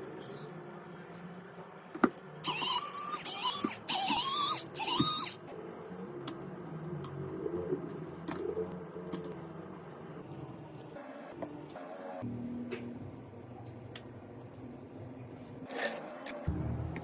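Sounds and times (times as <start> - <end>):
high-speed power tool whining: 2.4 - 5.4.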